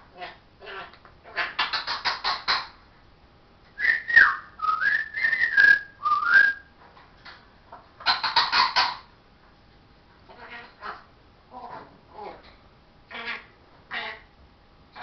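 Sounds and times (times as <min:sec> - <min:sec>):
parrot raspy chatter: 0:00.1 - 0:02.8, 0:08.0 - 0:09.1, 0:10.3 - 0:12.4, 0:13.1 - 0:14.3
parrot whistling: 0:03.8 - 0:06.6.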